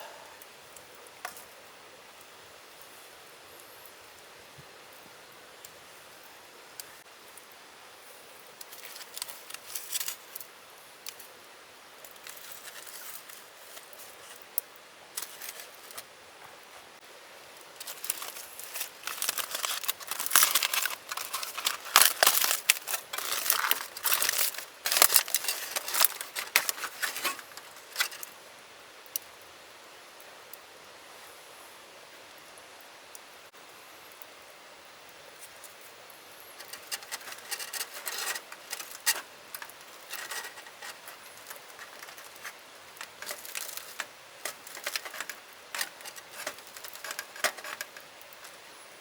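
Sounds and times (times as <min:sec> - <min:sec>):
faint steady hiss: 0:00.0 - 0:49.0
packaging crinkling: 0:12.2 - 0:14.4, 0:15.2 - 0:16.0, 0:17.8 - 0:28.3, 0:36.6 - 0:48.6.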